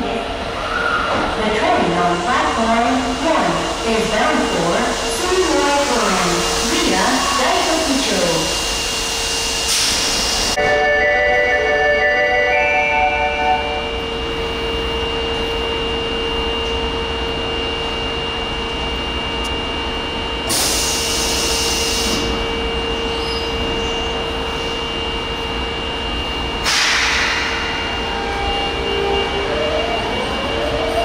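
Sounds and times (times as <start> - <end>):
loud hiss bursts: 26.6 - 27.8.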